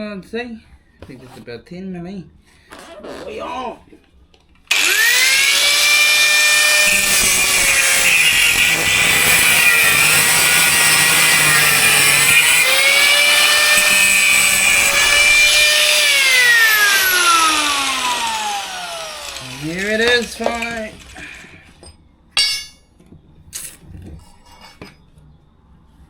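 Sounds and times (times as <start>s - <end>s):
angle grinder cutting steel: 4.7s - 21.7s.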